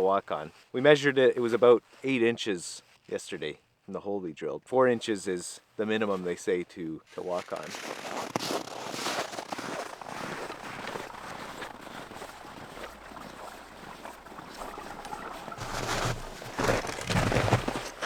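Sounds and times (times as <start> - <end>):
footsteps crunching in snow: 7.0 - 18.0.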